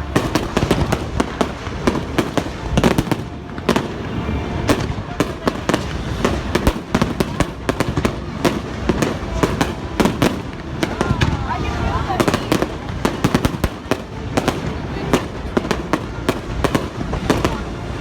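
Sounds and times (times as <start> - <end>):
fireworks bangs and crackles: 0.0 - 18.0
low rumble: 17.0 - 18.0.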